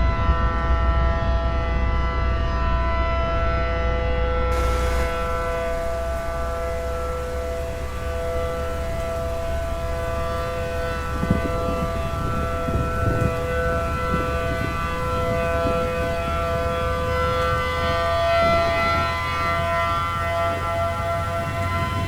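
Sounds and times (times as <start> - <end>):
warning siren chord: 0.0 - 22.0
low rumble: 4.5 - 19.4.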